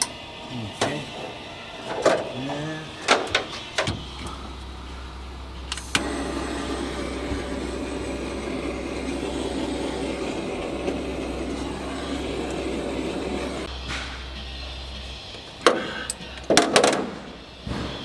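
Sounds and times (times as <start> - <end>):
low drone: 0.0 - 18.0
small electric motor running: 4.0 - 16.7.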